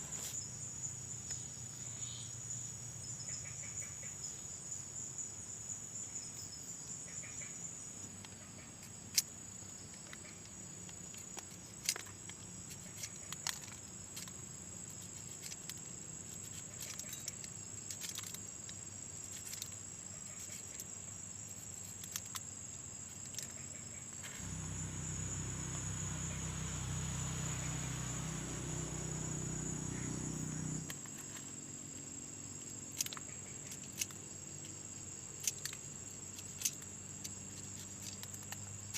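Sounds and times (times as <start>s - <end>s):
insects chirring: 0.0s - 38.9s
low hum: 24.4s - 30.9s.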